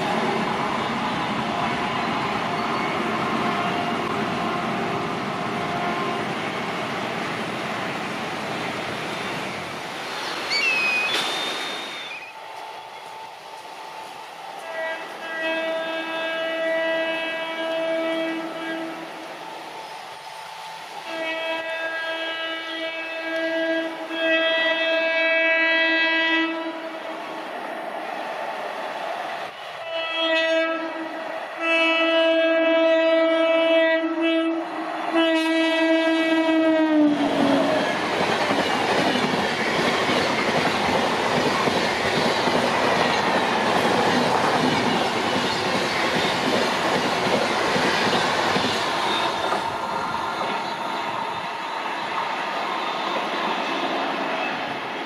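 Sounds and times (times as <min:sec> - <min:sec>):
locomotive air horn blasts: 0:14.6 - 0:19.2, 0:21.0 - 0:27.1, 0:29.7 - 0:37.9
train wheels clattering on rails: 0:37.4 - 0:51.4.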